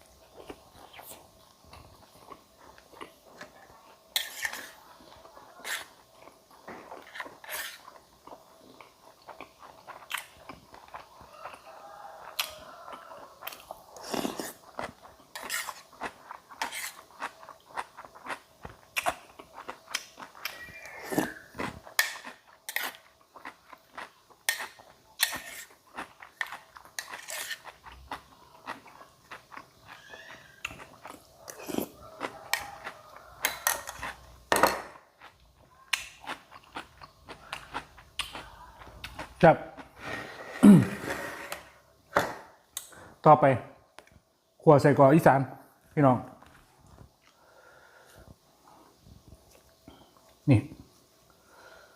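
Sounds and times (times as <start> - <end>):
person chewing food: 0.0 - 43.2.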